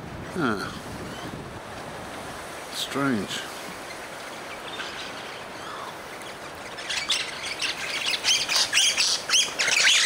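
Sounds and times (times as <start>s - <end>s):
birds squawking: 3.8s - 10.0s.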